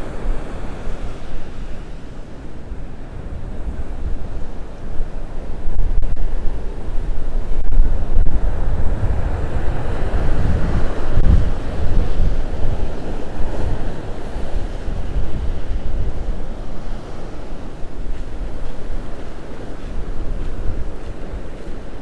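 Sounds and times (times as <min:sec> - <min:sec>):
gusty wind on microphone: 0:00.0 - 0:22.0
heavy surf breaking: 0:00.0 - 0:22.0.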